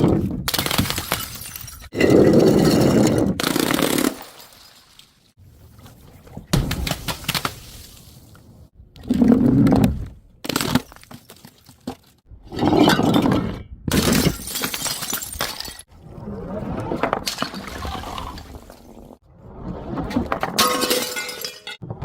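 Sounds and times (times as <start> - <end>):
glass bottles smashing: 0.6 - 3.1, 14.0 - 15.9, 20.6 - 21.8.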